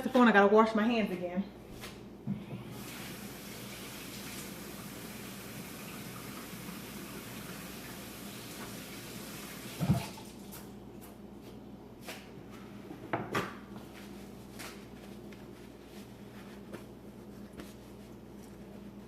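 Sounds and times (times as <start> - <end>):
kitchen tap running: 2.7 - 10.7.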